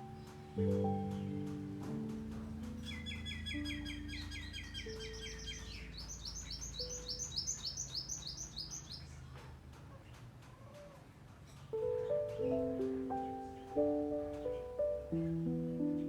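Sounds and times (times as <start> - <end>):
soft background music: 0.0 - 8.8, 11.7 - 16.0
songbird trilling: 2.2 - 9.3.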